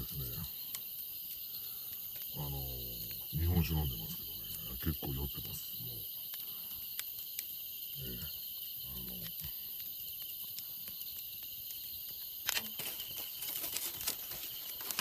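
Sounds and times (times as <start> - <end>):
man's voice murmuring: 0.0 - 0.5, 2.3 - 6.1
insects trilling: 0.0 - 15.0
faint clicks: 0.6 - 2.4, 6.2 - 7.6.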